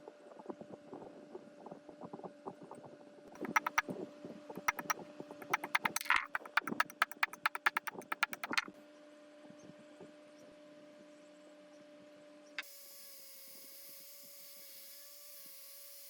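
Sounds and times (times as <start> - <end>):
hand tools clicking on metal: 3.4 - 3.8, 4.6 - 8.7
rapid even tapping: 3.4 - 4.0, 4.6 - 8.7.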